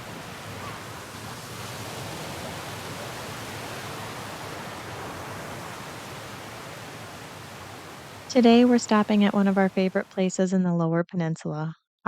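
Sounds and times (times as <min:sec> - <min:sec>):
small waterfall rushing: 0:00.0 - 0:08.8.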